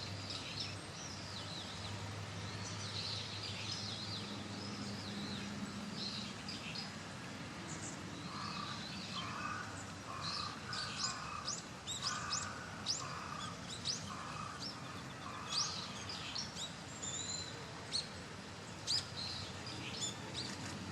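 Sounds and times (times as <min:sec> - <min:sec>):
steady background hiss: 0:00.0 - 0:20.9
birds chirping: 0:07.7 - 0:20.8.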